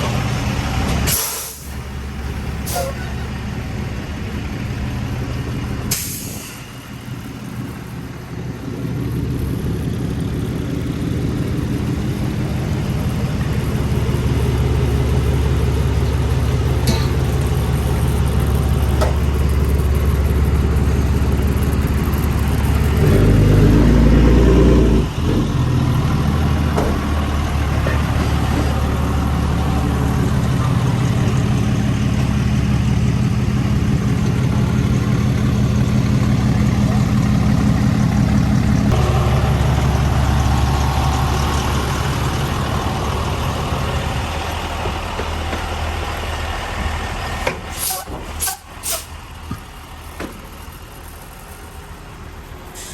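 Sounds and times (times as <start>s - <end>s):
diesel truck engine revving: 0.0s - 52.9s.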